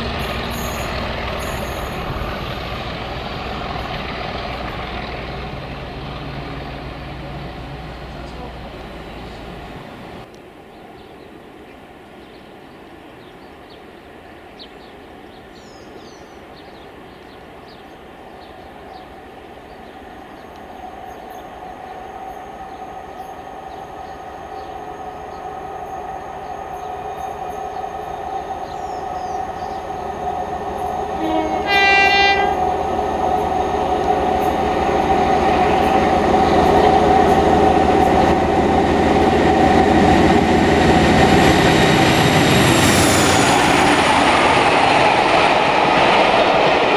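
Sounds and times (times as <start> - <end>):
train approaching: 0.0 - 46.9
train horn blast: 28.1 - 38.6.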